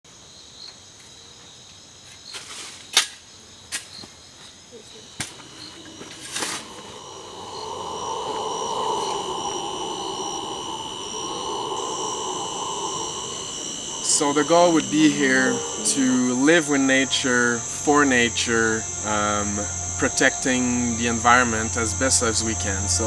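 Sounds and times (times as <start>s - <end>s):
insects chirping: 0.0s - 23.0s
low steady rushing: 5.9s - 23.0s.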